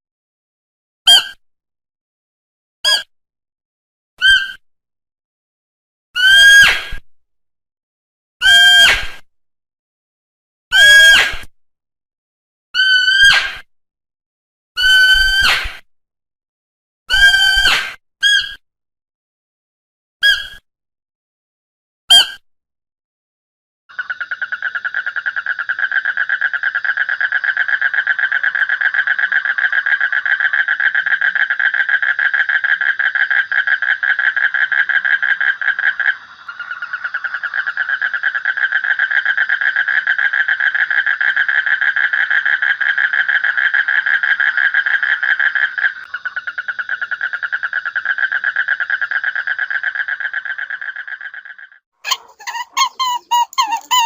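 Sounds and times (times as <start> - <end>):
animal pulsing trill: 52.1 - 54.0.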